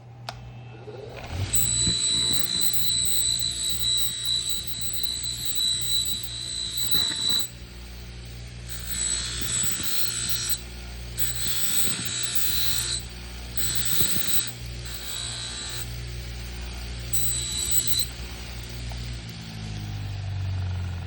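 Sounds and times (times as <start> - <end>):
bench grinder motor hum: 1.1 - 21.0.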